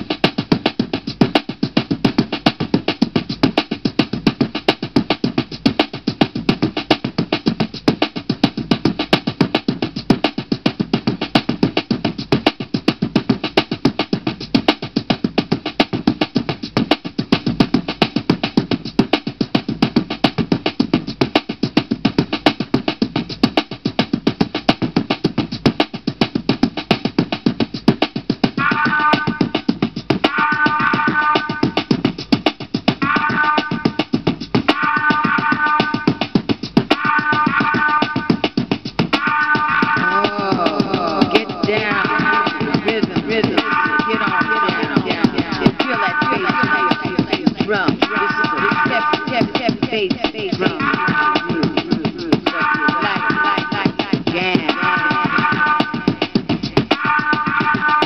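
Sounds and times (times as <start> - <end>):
music with drum beat: 0.0 - 58.0
held melody line: 28.6 - 32.0, 33.0 - 58.0.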